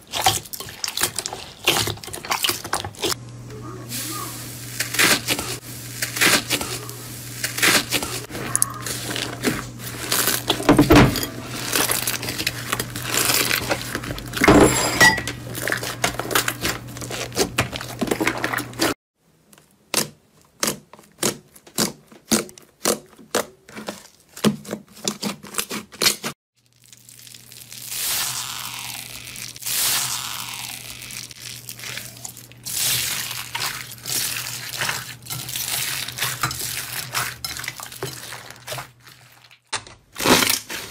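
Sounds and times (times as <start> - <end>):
slime crackling and popping: 26.6 - 40.9.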